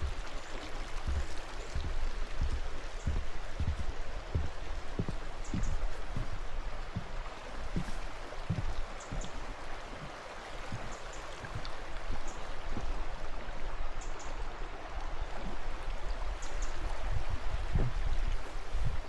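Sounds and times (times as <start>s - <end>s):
stream water rushing: 0.0s - 19.0s
low thumps: 1.0s - 9.4s, 17.1s - 18.2s.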